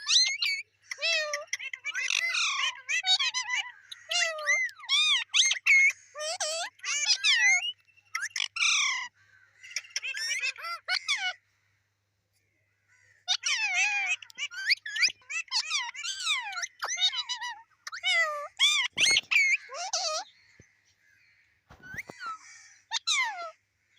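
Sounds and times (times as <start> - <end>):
parrot squawking and whistling: 13.3 - 20.2, 21.7 - 23.5.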